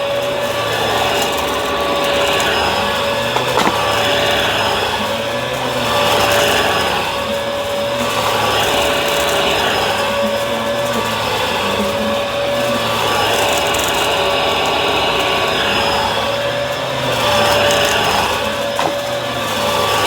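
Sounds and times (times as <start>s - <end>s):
vacuum cleaner motor whine: 0.0s - 20.0s.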